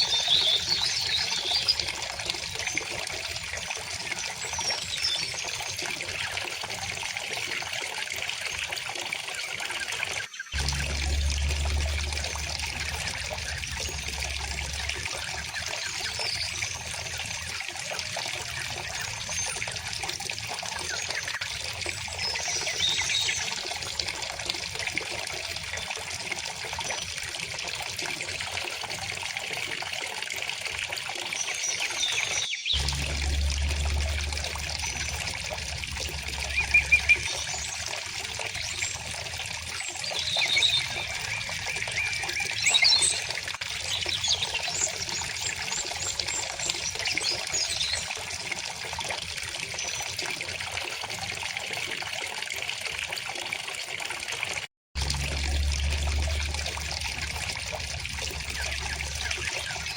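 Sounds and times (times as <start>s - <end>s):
small birds chirping: 0.0s - 1.9s
stream water running: 0.0s - 59.9s
low hum: 10.6s - 17.4s, 32.8s - 39.7s, 55.0s - 59.9s.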